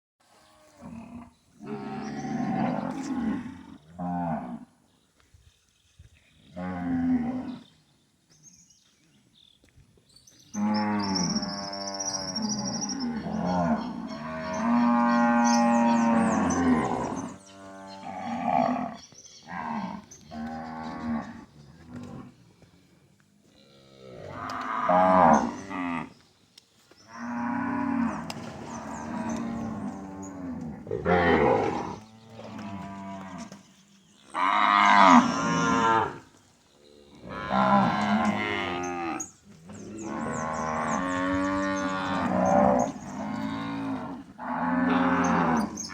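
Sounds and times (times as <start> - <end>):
cows mooing: 0.5 - 4.7, 10.6 - 22.4, 23.5 - 26.1, 27.1 - 33.6, 34.2 - 36.3, 36.9 - 45.9.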